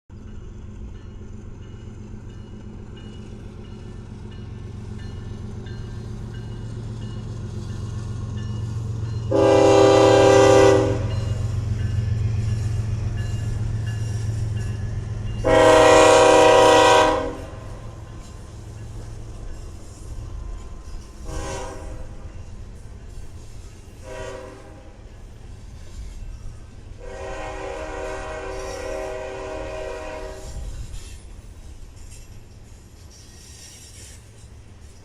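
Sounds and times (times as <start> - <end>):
diesel locomotive engine rumble: 0.1 - 35.0
train air horn chord: 9.3 - 11.4, 15.4 - 17.9, 21.2 - 22.3, 24.0 - 25.0, 27.0 - 30.7.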